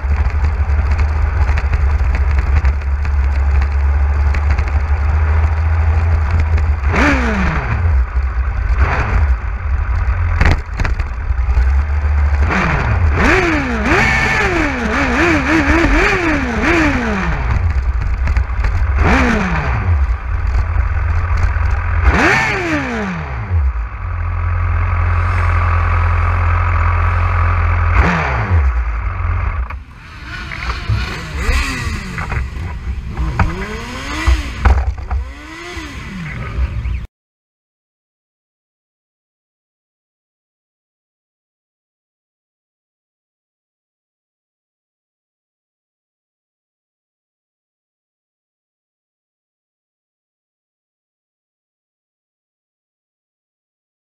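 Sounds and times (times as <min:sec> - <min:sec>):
motorcycle engine revving: 0:00.0 - 0:37.1.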